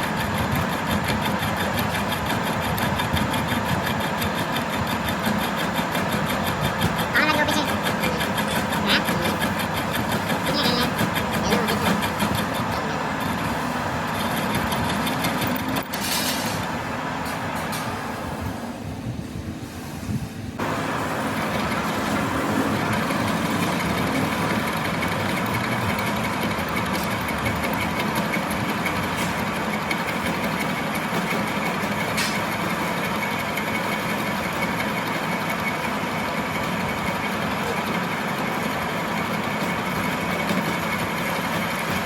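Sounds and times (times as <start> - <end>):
machine running with whine: 0.0 - 19.6, 20.5 - 42.0.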